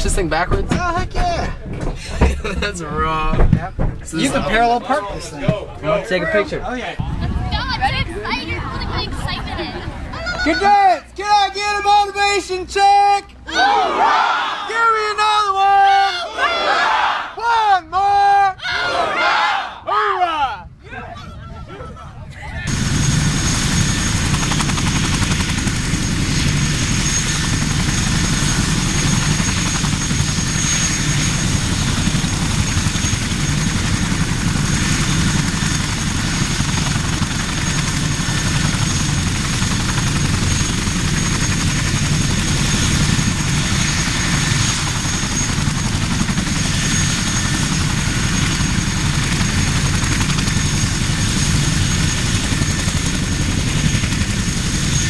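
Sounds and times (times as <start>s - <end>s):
helicopter rotor and turbine din: 0.0s - 15.9s, 21.4s - 55.0s
high-pitched whine: 25.9s - 33.4s.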